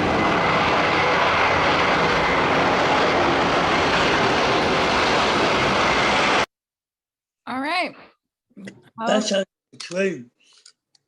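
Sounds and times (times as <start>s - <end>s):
airplane engine in flight: 0.0s - 6.5s.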